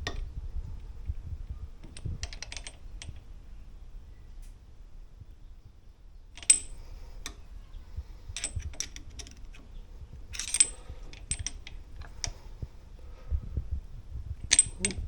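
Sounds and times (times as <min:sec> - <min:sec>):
metal tools clinking: 0:08.4 - 0:09.6, 0:10.3 - 0:12.4.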